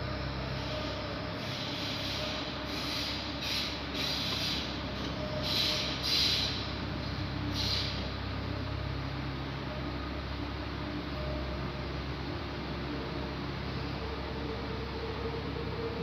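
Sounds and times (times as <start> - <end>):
distant train rumble: 0.0 - 16.0
train hiss: 0.4 - 8.4.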